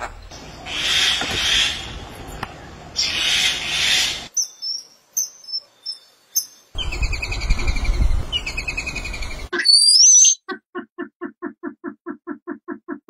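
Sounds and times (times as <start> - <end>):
low rumble of wind: 0.0 - 4.3, 6.7 - 9.5
noisy bird calls: 0.3 - 2.1, 2.9 - 4.3.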